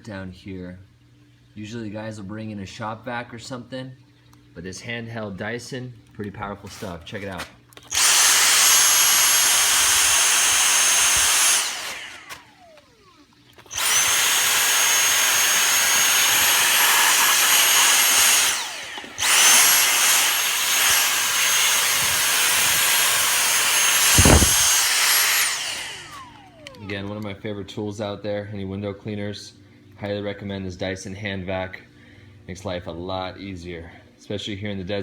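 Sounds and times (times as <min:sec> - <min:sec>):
handheld vacuum whining: 0:06.6 - 0:27.2.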